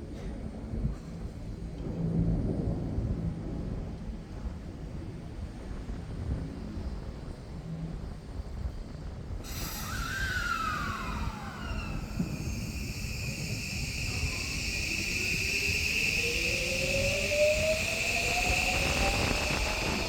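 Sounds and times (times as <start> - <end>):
wind rumble on microphone: 0.0 - 20.0
electric train motor whine: 9.4 - 20.0.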